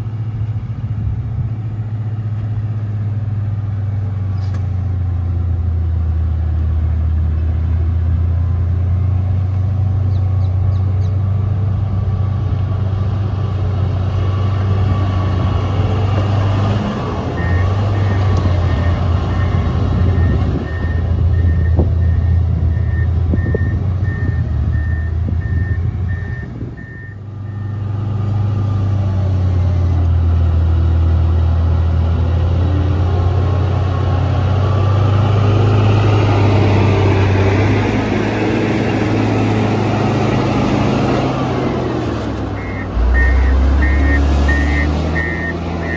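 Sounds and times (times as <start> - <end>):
diesel engine running: 0.0 - 45.9
reversing alarm beeps: 17.4 - 27.8, 42.6 - 45.9.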